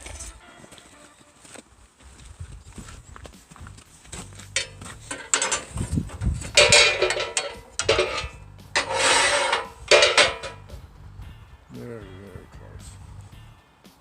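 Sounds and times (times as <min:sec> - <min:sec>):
metal clanking and scraping: 0:04.1 - 0:10.8.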